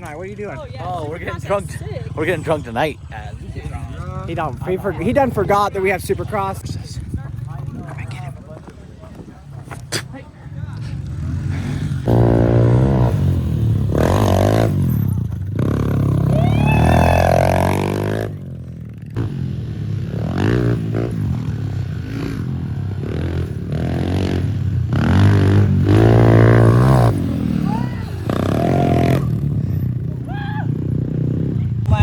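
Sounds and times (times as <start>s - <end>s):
dirt bike engine revving: 10.8s - 32.0s.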